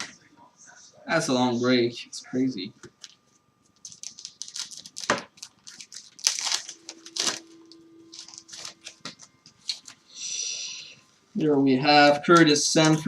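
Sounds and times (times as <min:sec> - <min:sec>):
card pack wrapper crinkling: 0:03.8 - 0:07.5, 0:08.1 - 0:10.0.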